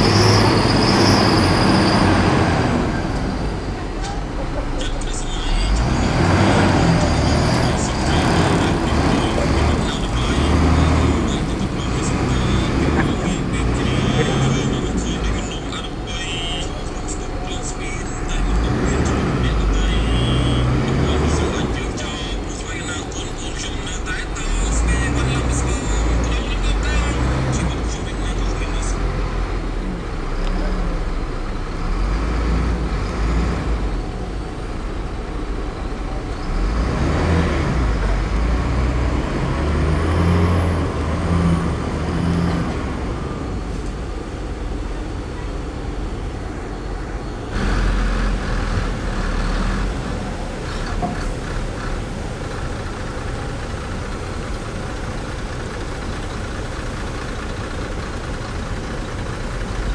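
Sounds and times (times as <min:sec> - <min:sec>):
heavy diesel machinery engines: 0:00.0 - 0:59.9.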